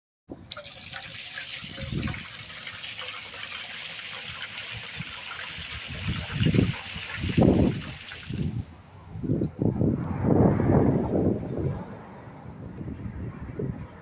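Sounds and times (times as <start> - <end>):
water gushing from pump outlet: 0.4 - 8.7.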